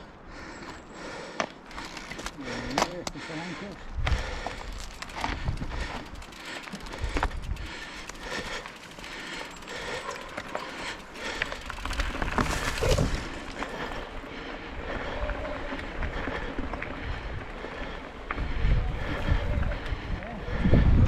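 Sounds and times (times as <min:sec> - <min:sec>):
bicycle tyres rolling on dirt: 0:00.3 - 0:21.0
small clicks and rattles: 0:04.5 - 0:13.1.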